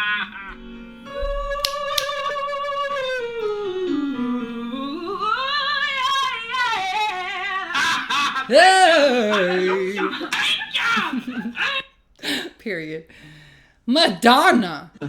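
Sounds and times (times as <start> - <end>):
person singing vocal warm-up: 8.5 - 10.3, 13.9 - 14.8.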